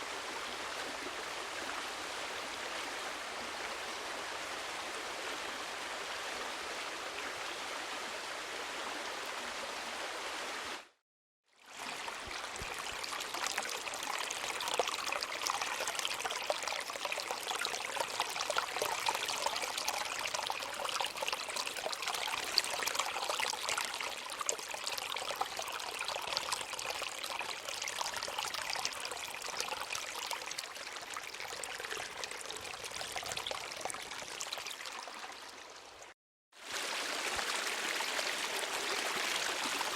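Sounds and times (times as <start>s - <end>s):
water trickling and bubbling: 11.5s - 39.9s
stream rushing: 36.6s - 39.9s.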